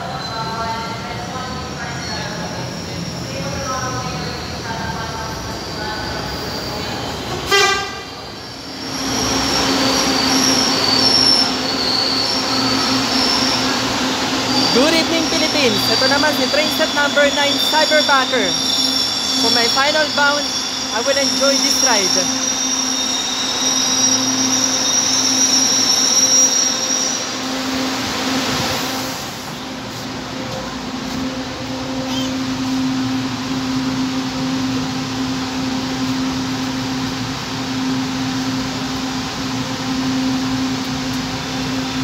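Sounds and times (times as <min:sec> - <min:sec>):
train rushing in: 0:00.0 - 0:42.0
high wheel squeal: 0:01.8 - 0:29.7, 0:31.8 - 0:33.0.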